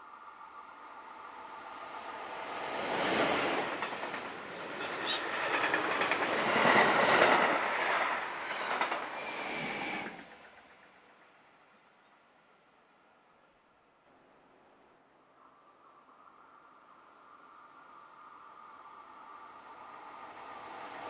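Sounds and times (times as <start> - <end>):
train wheels clacking on rails: 2.7 - 11.5.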